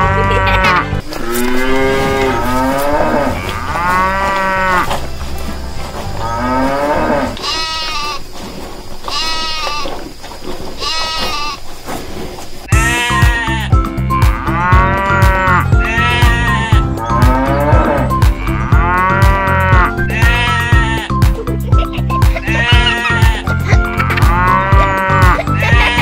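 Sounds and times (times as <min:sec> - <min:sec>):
cattle or sheep calling: 0:00.0 - 0:05.0, 0:06.2 - 0:08.3, 0:09.0 - 0:10.0, 0:10.8 - 0:11.6, 0:12.7 - 0:21.2, 0:22.3 - 0:26.0
animals bleating: 0:00.0 - 0:05.5, 0:06.2 - 0:08.3, 0:09.0 - 0:10.0, 0:10.8 - 0:11.6, 0:12.7 - 0:26.0
background music with steady beat: 0:12.7 - 0:26.0.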